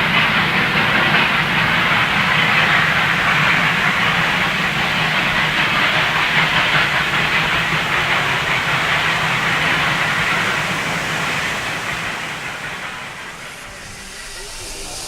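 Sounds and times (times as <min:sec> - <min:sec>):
steam train running: 0:00.0 - 0:15.0.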